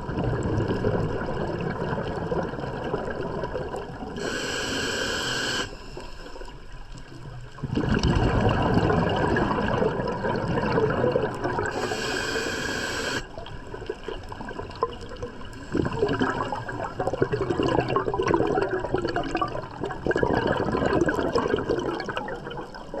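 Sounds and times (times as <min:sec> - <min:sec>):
bubbles gurgling underwater: 0:00.0 - 0:04.3, 0:07.0 - 0:12.3, 0:12.9 - 0:23.0
regulator inhalation hiss: 0:04.2 - 0:06.4, 0:11.7 - 0:13.3.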